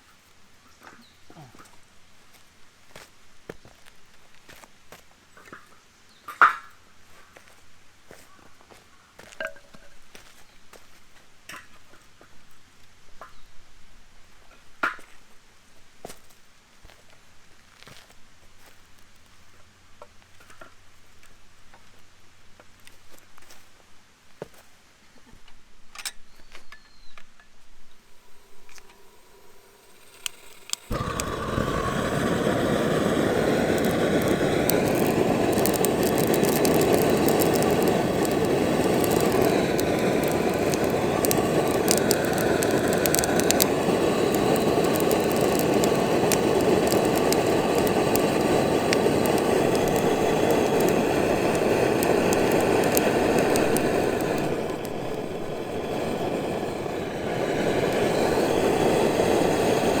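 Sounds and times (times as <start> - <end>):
gas torch flame rushing: 28.1 - 60.0
crackling ticks: 28.6 - 60.0.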